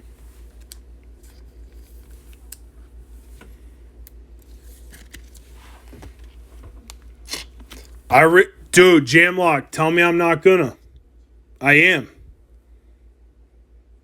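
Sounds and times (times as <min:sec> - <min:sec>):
low steady hum: 0:00.0 - 0:14.0
trading cards being flipped: 0:04.4 - 0:05.5.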